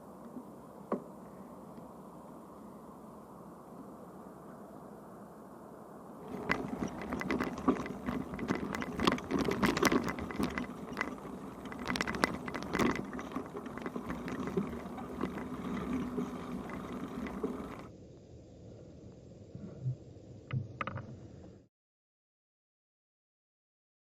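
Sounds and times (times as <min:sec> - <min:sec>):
bicycle rattling and clicking: 0:06.2 - 0:17.9.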